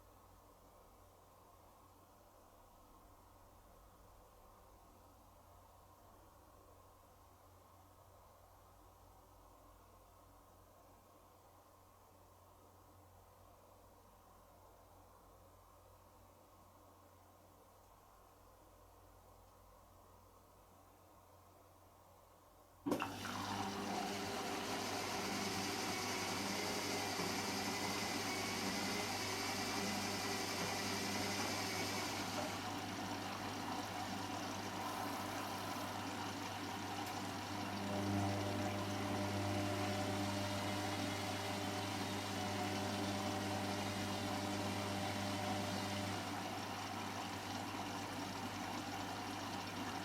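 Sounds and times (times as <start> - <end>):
washing machine humming: 22.9 - 50.0.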